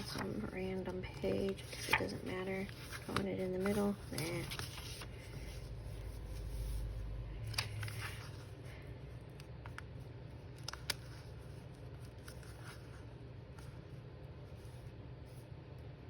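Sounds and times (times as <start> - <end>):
paper rustling on a tabletop: 0.0 - 8.8, 10.5 - 15.5.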